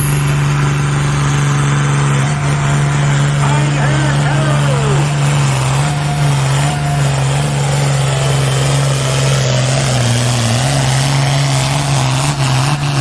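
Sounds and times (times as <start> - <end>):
diesel tractor engine at high revs: 0.0 - 13.0.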